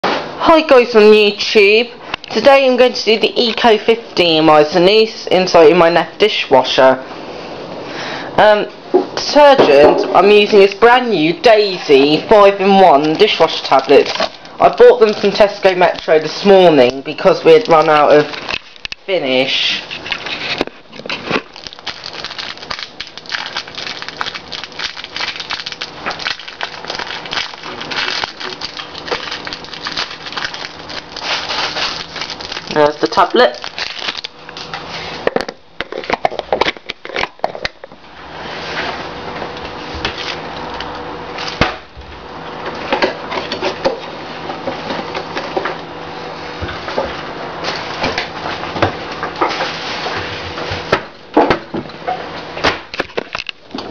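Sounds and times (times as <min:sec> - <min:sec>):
plastic wrapping crinkling: 0:10.2 - 0:37.9.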